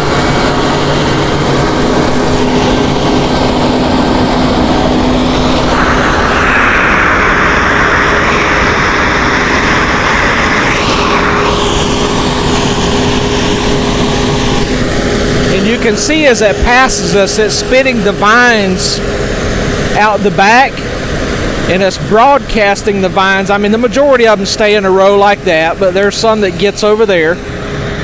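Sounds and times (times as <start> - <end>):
combine harvester running: 0.0 - 28.0
rushing noise: 0.0 - 28.0
tractor diesel engine: 0.0 - 28.0.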